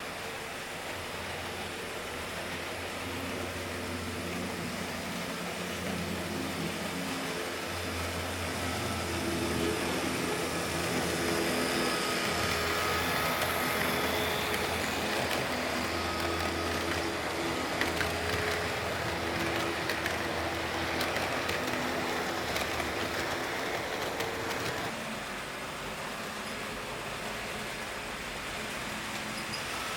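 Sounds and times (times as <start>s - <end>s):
model train motor humming: 0.0s - 29.9s
wheels clicking over rail joints: 4.2s - 25.0s.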